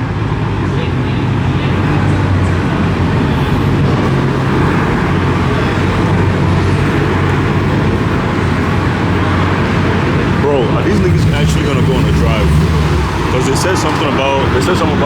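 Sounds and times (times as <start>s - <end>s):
car engines idling: 0.0s - 15.0s.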